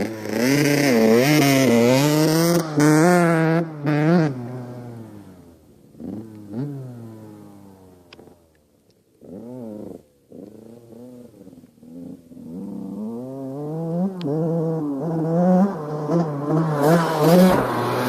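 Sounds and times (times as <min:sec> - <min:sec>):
dirt bike engine revving: 0:00.0 - 0:08.4, 0:09.2 - 0:18.0.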